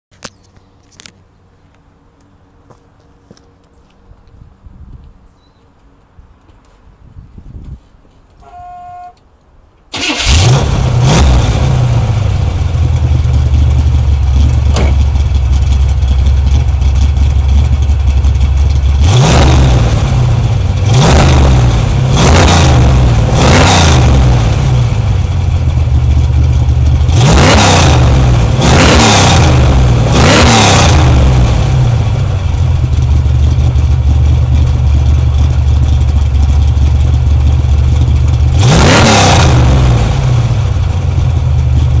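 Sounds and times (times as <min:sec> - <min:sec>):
short electronic beep: 0:08.4 - 0:09.2
car engine idling and revving: 0:09.9 - 0:42.0.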